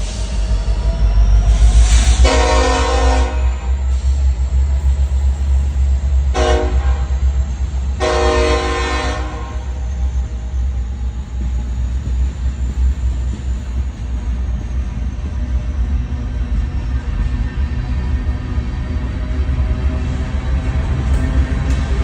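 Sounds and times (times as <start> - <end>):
diesel locomotive engine rumble: 0.0 - 22.0
locomotive air horn blasts: 2.2 - 3.8, 6.3 - 7.2, 8.0 - 9.8.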